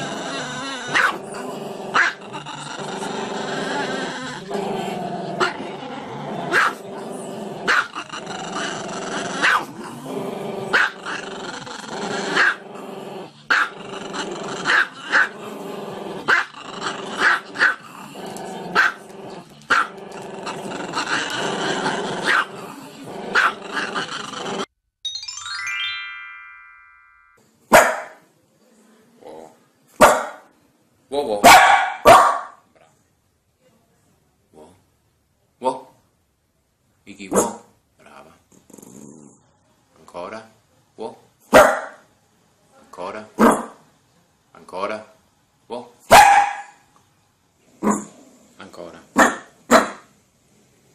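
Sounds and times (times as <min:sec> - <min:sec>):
dog barking sharply: 0:27.7 - 0:28.2, 0:30.0 - 0:30.4, 0:31.4 - 0:32.6, 0:41.5 - 0:42.0, 0:46.1 - 0:46.8, 0:49.2 - 0:50.0.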